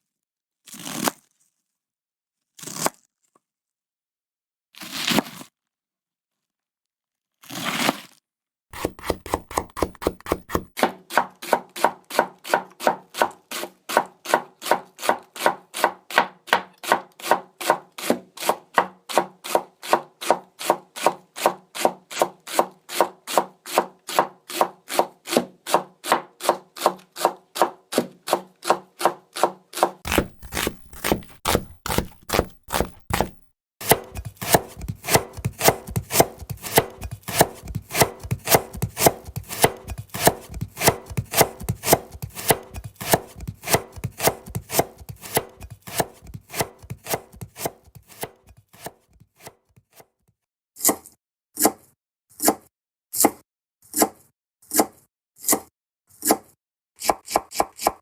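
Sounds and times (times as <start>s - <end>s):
knife chopping on cutting board: 8.8s - 50.0s, 57.0s - 58.0s.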